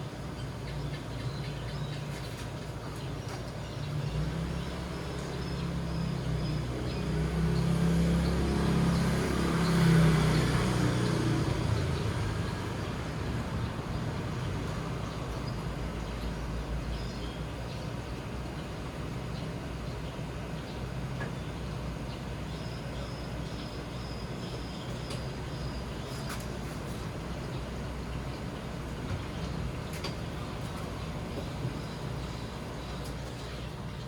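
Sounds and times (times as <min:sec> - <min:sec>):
vehicle engine passing: 0:03.8 - 0:16.9.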